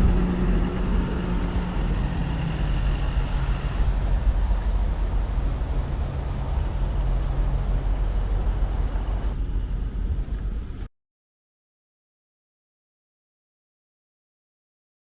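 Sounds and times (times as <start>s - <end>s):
traffic rumble: 0.0s - 10.9s.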